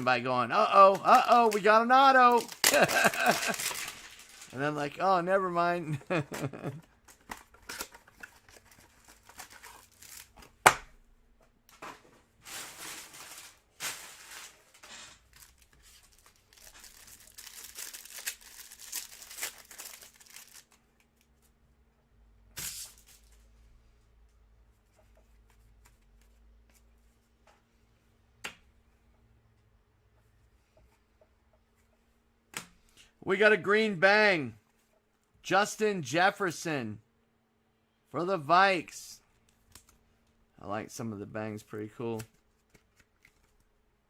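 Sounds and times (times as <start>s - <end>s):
packaging tearing and crinkling: 2.3s - 4.6s, 12.5s - 20.8s.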